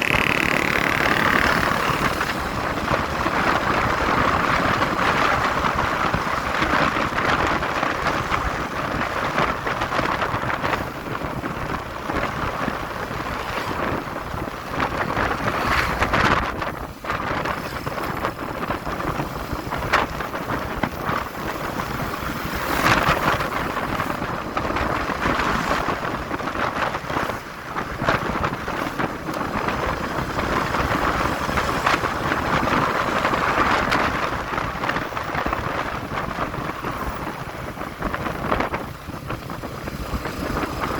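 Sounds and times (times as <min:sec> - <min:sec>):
motorcycle engine: 0:00.0 - 0:05.3
wind rushing over microphone: 0:00.0 - 0:40.9.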